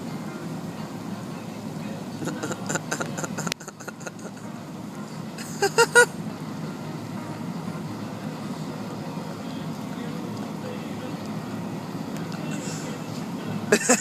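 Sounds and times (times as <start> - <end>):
car idling from inside: 0.0 - 14.0
broken vocal sounds: 2.2 - 4.4
loud bursts like laughter: 2.2 - 4.4, 5.4 - 6.1, 13.7 - 14.0.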